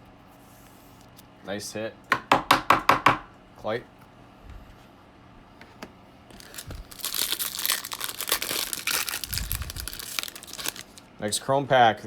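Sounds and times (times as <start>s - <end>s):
foil wrapper crinkling and tearing: 6.3s - 11.1s.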